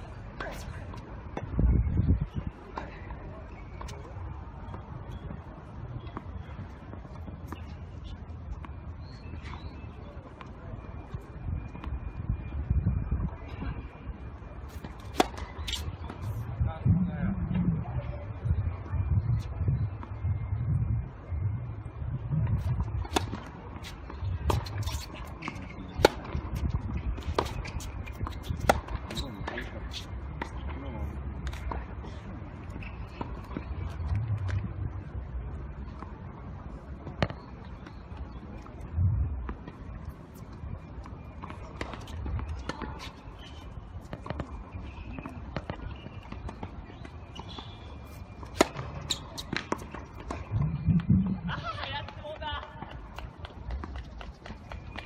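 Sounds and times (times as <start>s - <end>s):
low wind rumble: 0.0s - 3.5s, 11.0s - 37.0s, 38.8s - 41.4s, 49.8s - 54.4s
racket striking tennis ball: 23.0s - 30.0s
footsteps on court: 39.4s - 55.0s
low outdoor rumble: 48.1s - 52.8s.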